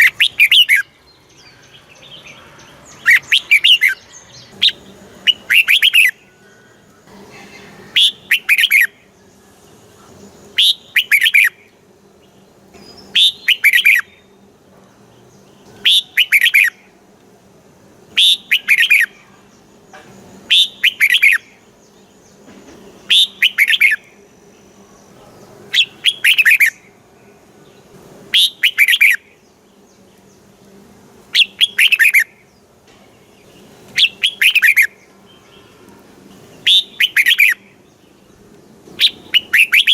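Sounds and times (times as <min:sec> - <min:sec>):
bird singing whistled notes: 0:00.0 - 0:06.7, 0:07.4 - 0:09.6, 0:10.5 - 0:11.8, 0:12.8 - 0:14.4, 0:15.7 - 0:16.9, 0:18.1 - 0:19.2, 0:20.5 - 0:22.0, 0:23.0 - 0:24.2, 0:25.7 - 0:26.9, 0:28.3 - 0:29.4, 0:31.3 - 0:32.5, 0:33.4 - 0:35.8, 0:36.5 - 0:38.3, 0:39.0 - 0:39.9
faint steady hum: 0:00.0 - 0:39.9.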